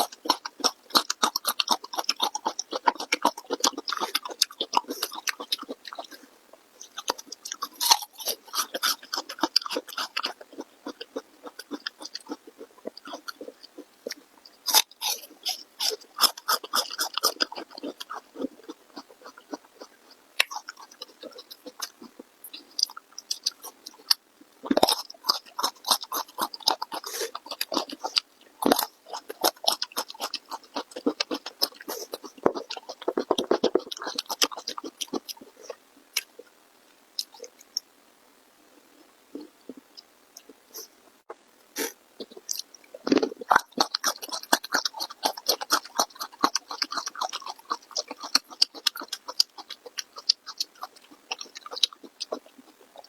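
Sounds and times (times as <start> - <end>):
person chewing food: 0.0 - 36.6, 37.2 - 37.9, 38.8 - 53.0
mouth clicks: 37.2 - 37.9, 41.8 - 53.0.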